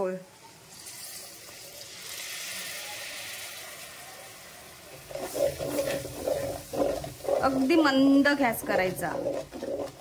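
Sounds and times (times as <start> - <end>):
paste sizzling in hot oil: 0.4 - 10.0
loud uneven noises: 4.9 - 10.0.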